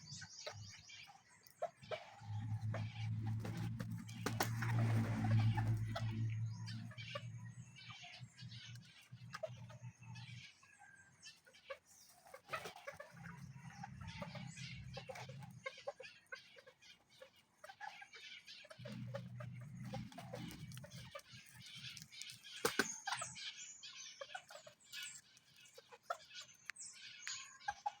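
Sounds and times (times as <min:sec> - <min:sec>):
chickens clucking and chirping: 0:00.0 - 0:28.0
low hum: 0:01.9 - 0:08.8.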